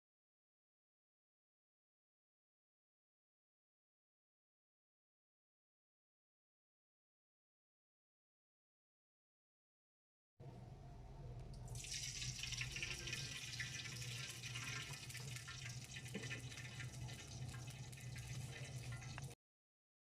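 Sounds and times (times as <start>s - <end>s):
steady low hum: 10.4s - 11.9s
water running from a tap: 11.7s - 19.4s.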